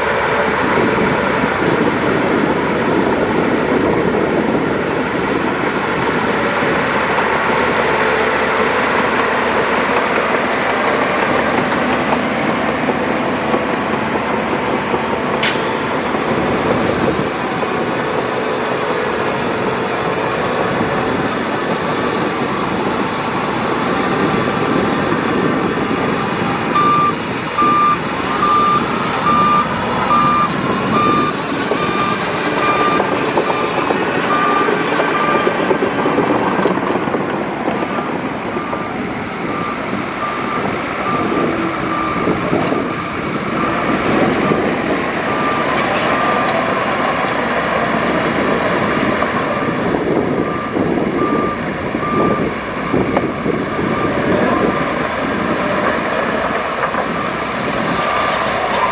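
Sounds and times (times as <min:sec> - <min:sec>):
heavy machinery running: 0:00.0 - 0:58.9
reversing alarm beeping: 0:25.4 - 0:35.7, 0:38.0 - 0:47.3, 0:47.9 - 0:58.9.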